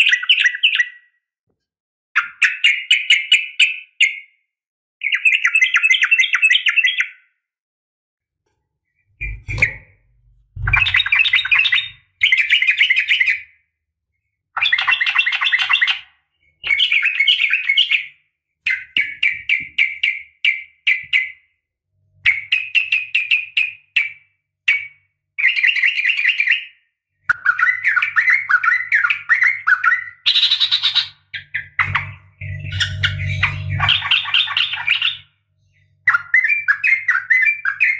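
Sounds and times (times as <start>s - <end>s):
bulbul chattering call: 30.3s - 35.2s.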